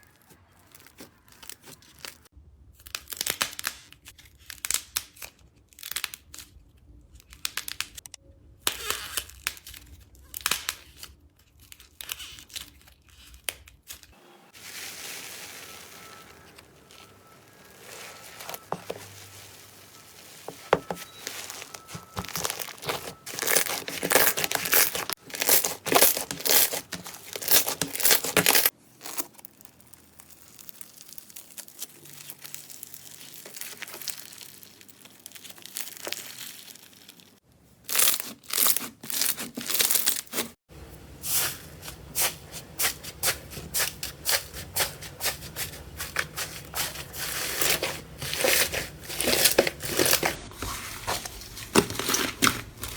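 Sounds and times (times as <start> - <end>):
slime crackling and popping: 15.4 - 40.4.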